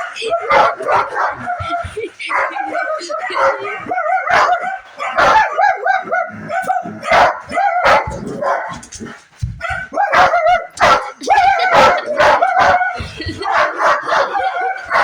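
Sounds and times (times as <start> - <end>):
dog barking: 0.0 - 15.0.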